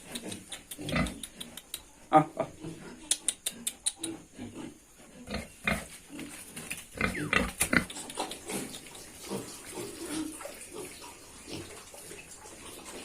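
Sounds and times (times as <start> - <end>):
pigs grunting: 0.1 - 1.5, 4.0 - 6.3, 6.9 - 11.8.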